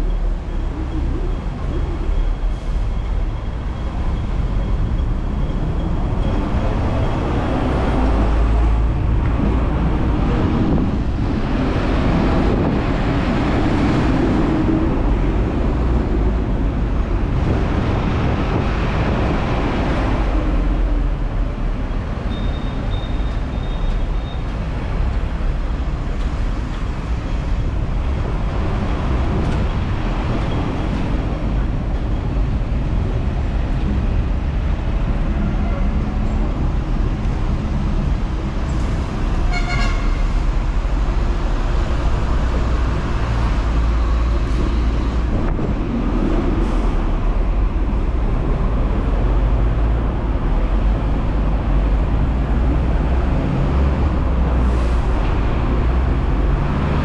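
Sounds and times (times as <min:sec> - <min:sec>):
road traffic: 0:00.0 - 0:57.0
tram rumbling on rails: 0:00.0 - 0:57.0
faint high squeal: 0:22.3 - 0:24.5.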